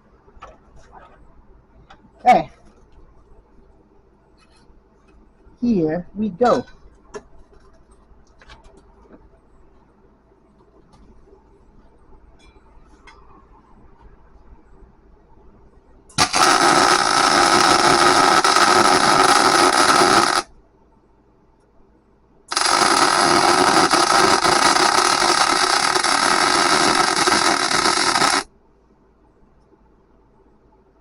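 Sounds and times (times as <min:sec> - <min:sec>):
welder arc hissing and crackling: 0:16.1 - 0:20.5, 0:22.5 - 0:28.5.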